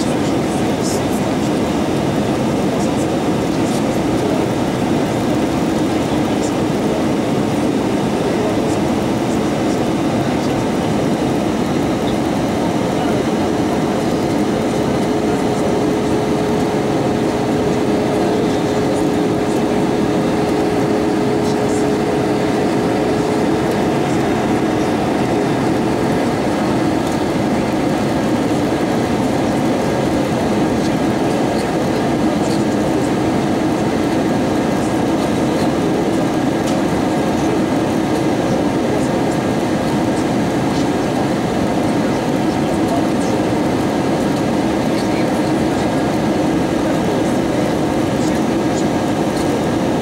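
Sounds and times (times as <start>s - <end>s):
jet engines humming: 0.0s - 50.0s
airflow rushing over fuselage: 4.1s - 38.0s.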